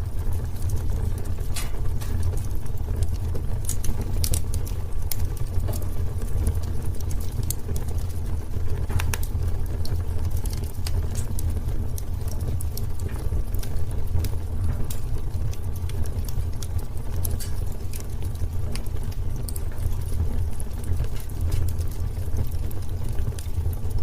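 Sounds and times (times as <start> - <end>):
fire crackling and popping: 0.0 - 24.0
flames rumbling: 0.0 - 24.0.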